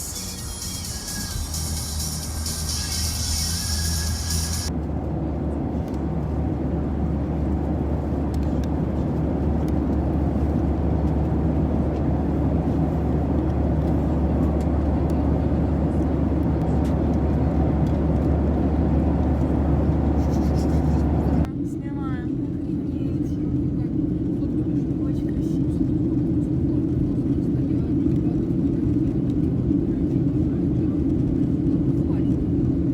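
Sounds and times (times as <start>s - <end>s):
car engine and road noise: 0.0s - 21.5s.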